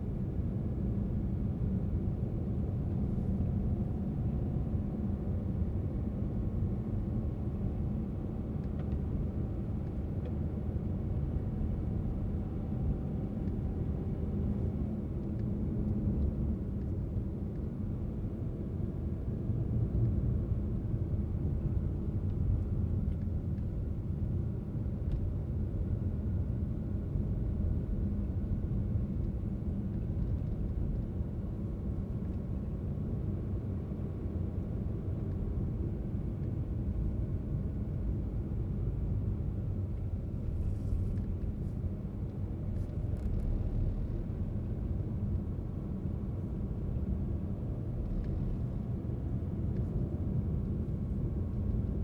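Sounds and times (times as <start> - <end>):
car driving rumble: 38.0 - 52.0.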